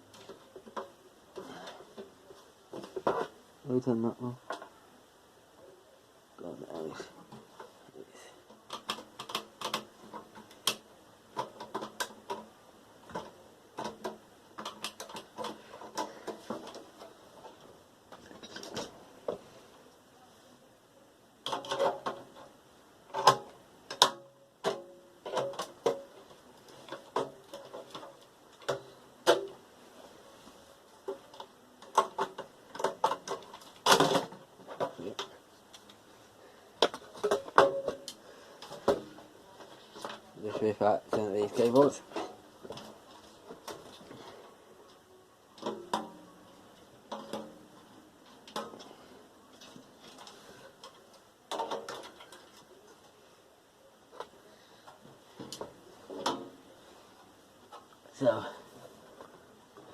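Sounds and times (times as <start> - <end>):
computer parts clicking and clattering: 8.4 - 19.0.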